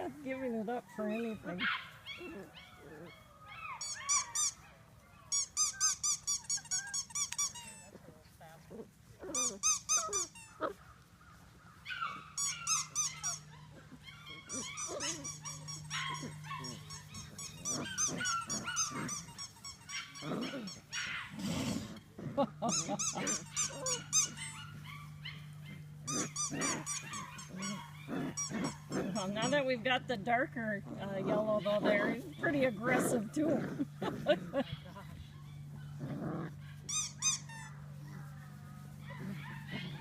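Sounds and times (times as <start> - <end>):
puppies growling and yipping: 0.0 - 40.0.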